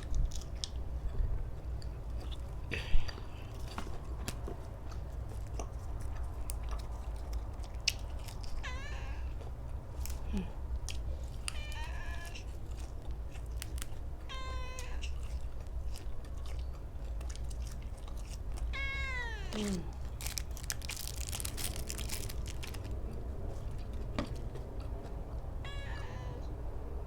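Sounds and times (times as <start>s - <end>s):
chewing and crunching food: 0.0s - 25.7s
cat meowing: 8.6s - 9.5s, 11.4s - 12.6s, 14.2s - 15.2s, 18.7s - 20.1s, 25.6s - 26.6s.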